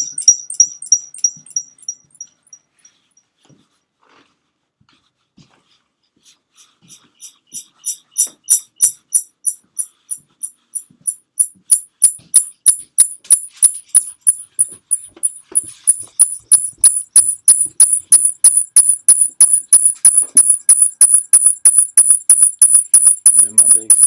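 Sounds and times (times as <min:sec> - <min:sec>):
high-pitched chirping click: 0:00.0 - 0:02.5, 0:07.8 - 0:10.1, 0:11.4 - 0:24.0.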